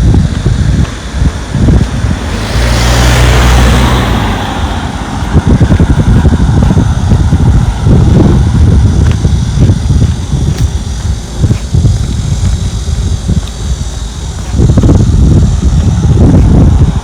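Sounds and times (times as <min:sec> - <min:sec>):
wind buffeting microphone: 0:00.0 - 0:17.0
vehicle passing by: 0:00.7 - 0:10.1.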